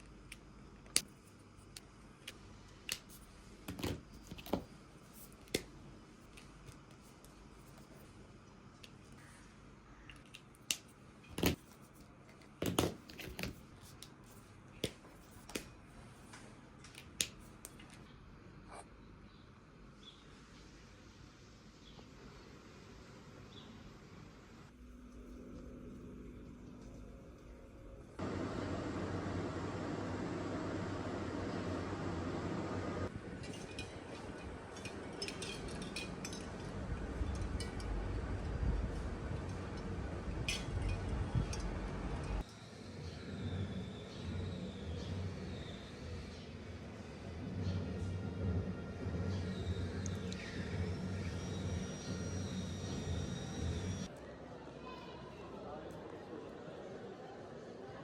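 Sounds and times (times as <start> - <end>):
small clicks of objects handled: 10.0 - 18.1
dishes and cutlery clinking: 33.4 - 36.8.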